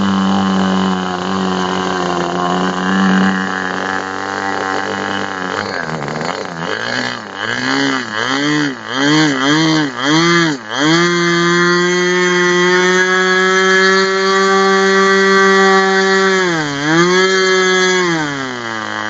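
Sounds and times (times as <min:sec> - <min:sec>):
model engine revving: 0:00.0 - 0:19.0.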